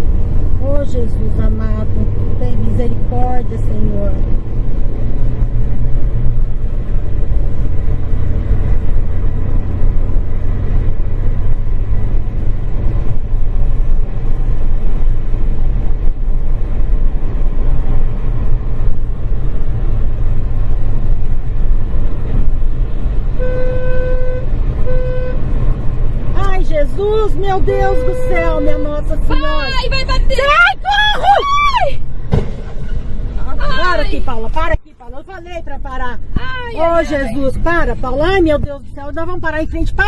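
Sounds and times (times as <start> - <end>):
vehicle engine and road rumble: 0.0 - 40.0
vehicle horn blasts: 23.4 - 25.5, 27.6 - 29.8.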